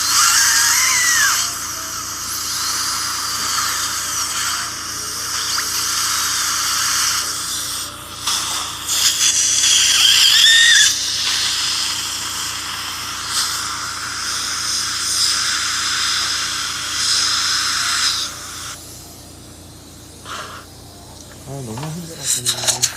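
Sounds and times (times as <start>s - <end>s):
wavering squeal: 0.0s - 1.6s, 10.0s - 11.0s
dental drill hissing: 0.0s - 20.9s, 21.5s - 22.9s.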